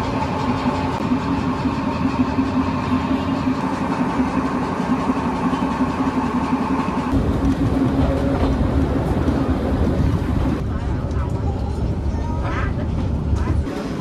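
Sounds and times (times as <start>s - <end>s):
train engine drone: 0.0s - 14.0s
heavy low rumble: 6.9s - 13.7s.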